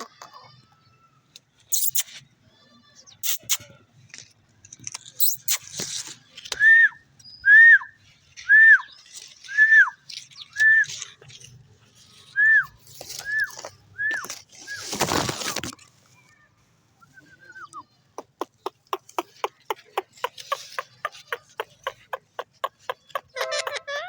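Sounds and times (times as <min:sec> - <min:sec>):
harsh high-pitched parrot noises: 0:17.1 - 0:24.0.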